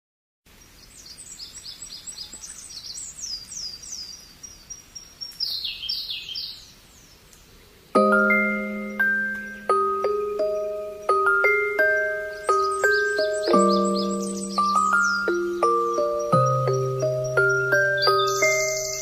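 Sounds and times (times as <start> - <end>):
songbird singing: 0.5 - 19.0
chime-like musical notes: 8.0 - 19.0.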